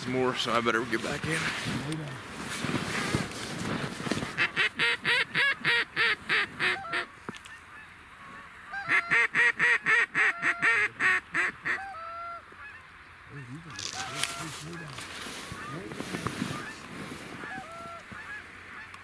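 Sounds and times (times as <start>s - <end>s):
goose call honks: 4.3s - 7.1s, 7.8s - 19.0s.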